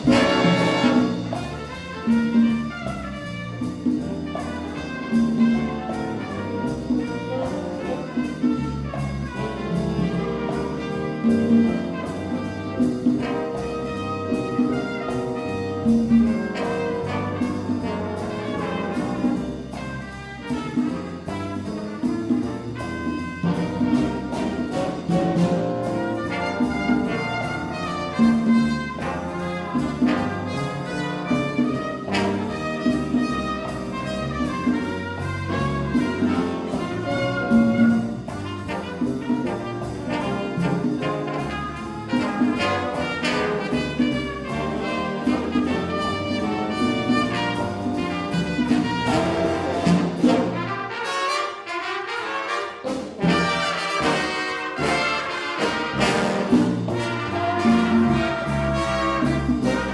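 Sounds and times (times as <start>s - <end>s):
big band playing jazz: 0.0s - 59.9s.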